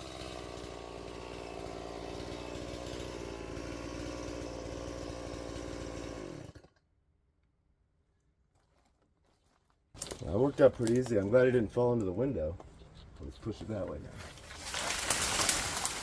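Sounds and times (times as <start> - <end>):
chainsaw engine running: 0.0 - 6.7, 14.6 - 16.0.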